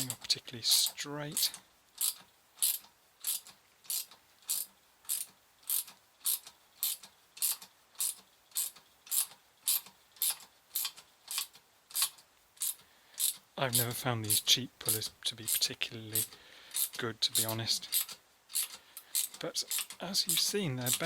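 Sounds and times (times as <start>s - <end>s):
bearing puller screw clicking: 16.2s - 21.0s.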